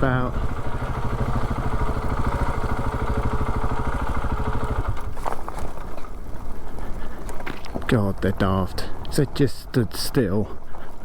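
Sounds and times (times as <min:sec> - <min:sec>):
single-cylinder engine at low revs: 0:00.0 - 0:06.1.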